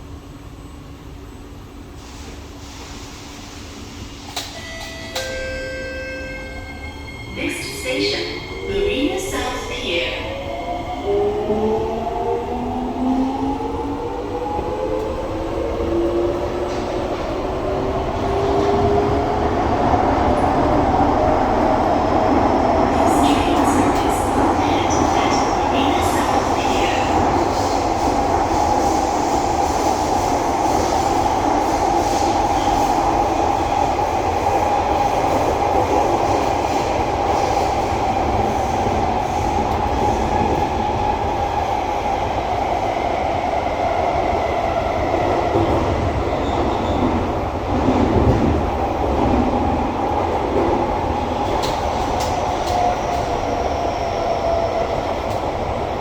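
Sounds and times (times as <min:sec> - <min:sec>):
train wheels rumbling on rail: 0:07.1 - 0:56.0.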